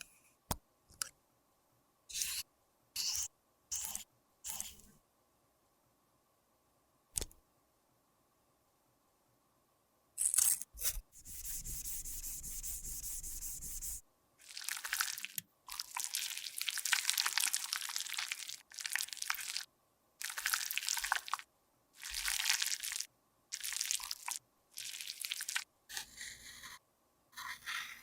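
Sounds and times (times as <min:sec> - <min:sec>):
click: 0:07.2 - 0:07.4.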